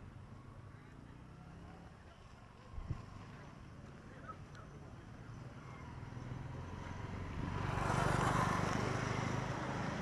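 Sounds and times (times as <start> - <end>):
vehicle driving past: 5.4 - 10.0.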